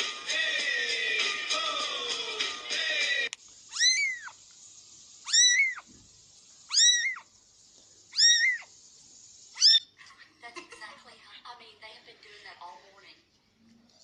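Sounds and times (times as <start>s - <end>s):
cat meowing: 3.7s - 4.4s, 5.3s - 5.8s, 6.7s - 7.2s, 8.1s - 8.7s, 9.6s - 9.9s.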